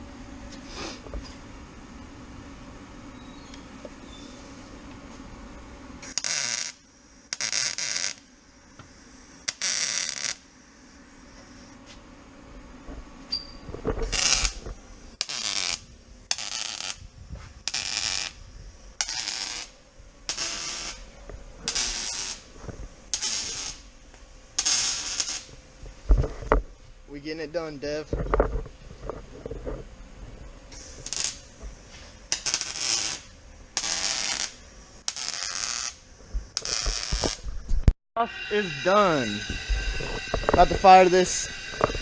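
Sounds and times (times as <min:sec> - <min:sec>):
welder hissing: 0:00.0 - 0:01.5, 0:06.0 - 0:12.0, 0:14.0 - 0:26.3, 0:30.7 - 0:42.0.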